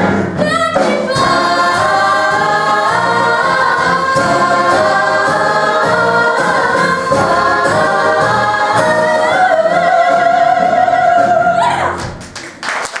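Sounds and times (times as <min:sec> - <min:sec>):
cast singing with accompaniment: 0:00.0 - 0:12.0
applause: 0:12.2 - 0:13.0.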